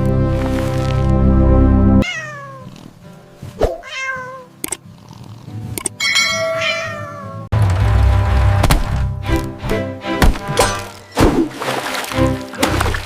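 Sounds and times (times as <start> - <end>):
cartoon cat meowing: 2.0 - 2.7, 3.8 - 4.5, 6.6 - 7.5.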